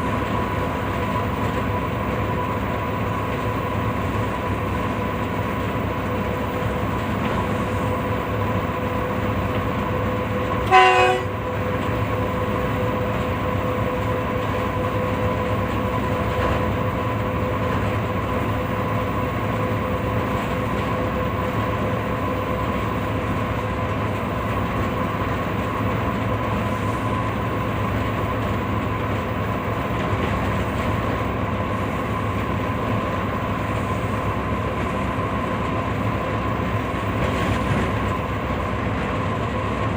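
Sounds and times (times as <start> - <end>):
train running on track: 0.0 - 39.9
train horn blast: 10.6 - 11.6.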